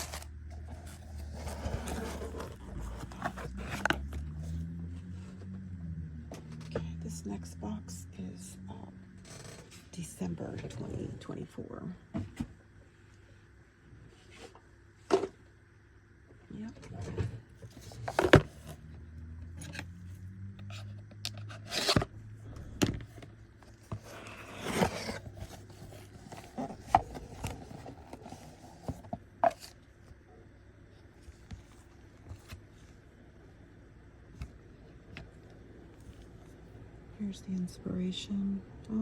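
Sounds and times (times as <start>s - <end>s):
cardboard box being handled: 0.0s - 4.5s, 23.7s - 29.8s
cardboard scraping: 0.0s - 4.6s, 23.1s - 29.8s.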